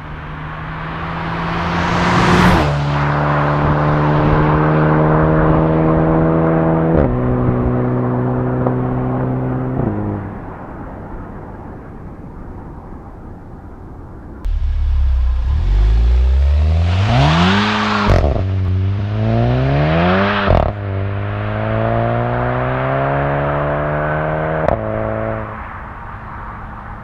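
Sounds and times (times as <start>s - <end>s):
car passing by: 0.0s - 10.8s, 14.5s - 27.0s
car exhaust note: 14.5s - 20.9s.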